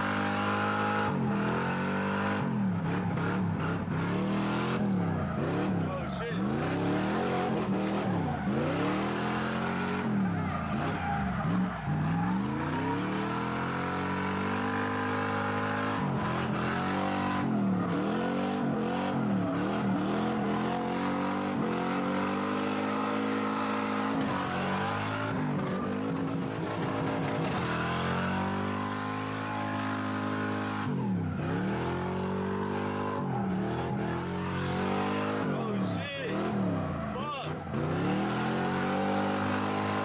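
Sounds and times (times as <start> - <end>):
car engine revving hard: 0.0 - 40.0.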